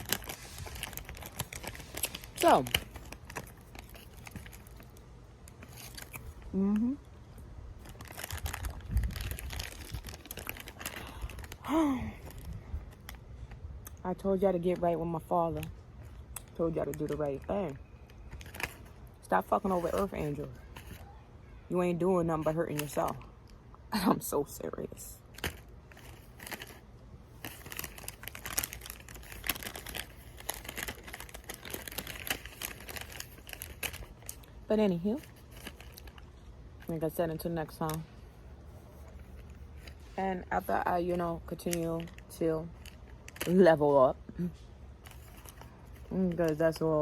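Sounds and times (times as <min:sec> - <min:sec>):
crinkling and clicking handling noises: 0:00.0 - 0:06.5, 0:07.8 - 0:21.2, 0:22.3 - 0:23.6, 0:25.2 - 0:47.0
short hum-like vocal sound: 0:06.4 - 0:07.1.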